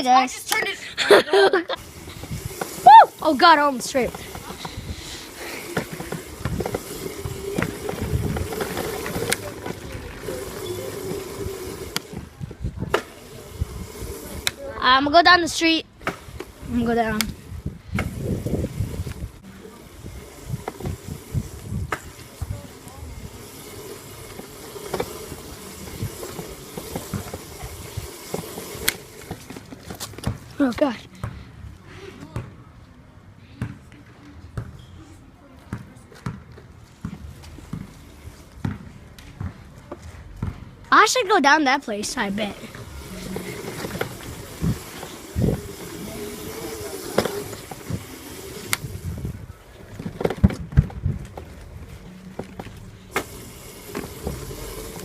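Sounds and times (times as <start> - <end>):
knocks and rattles over bumps: 42.2 - 55.0.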